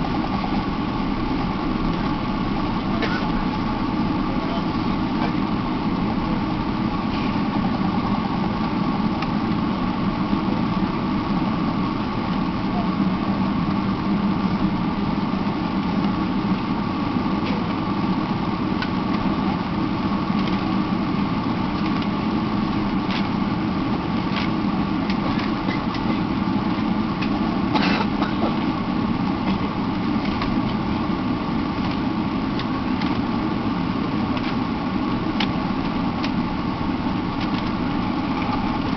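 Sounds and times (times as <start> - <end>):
airliner cabin hum: 0.0 - 38.9.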